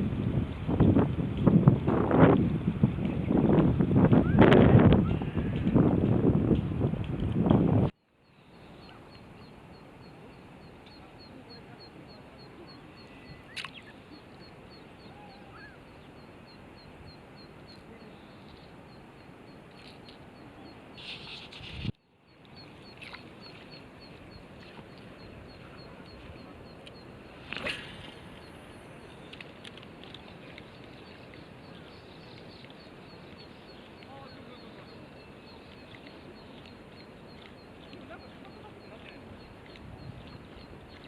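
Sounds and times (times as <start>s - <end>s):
steady low hiss: 5.8s - 41.0s
faint high chirping: 8.2s - 21.5s.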